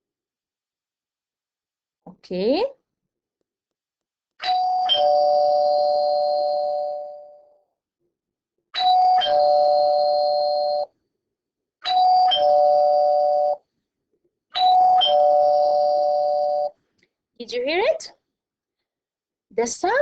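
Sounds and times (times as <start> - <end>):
doorbell ding-dong chime: 4.4 - 7.5, 8.8 - 10.9, 11.8 - 13.6, 14.6 - 16.7.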